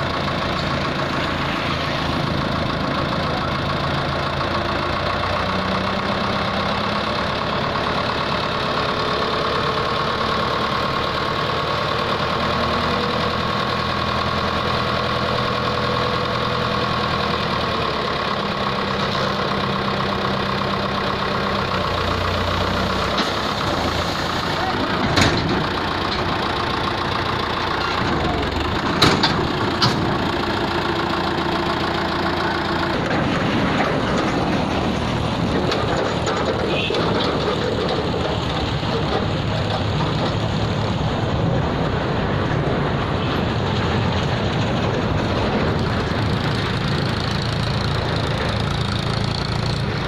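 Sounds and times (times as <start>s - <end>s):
tractor diesel engine running: 0.0s - 50.0s.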